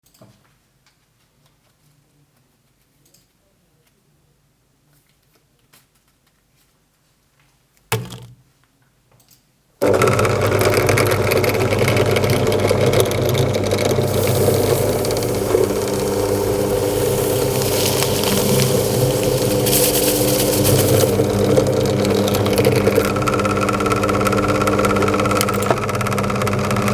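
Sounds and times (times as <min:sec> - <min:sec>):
electric drill motor running: 0:09.8 - 0:26.9.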